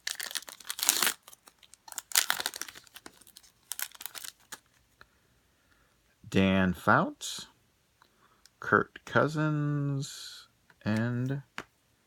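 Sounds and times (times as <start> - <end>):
foil wrapper crinkling: 0.0 - 4.7.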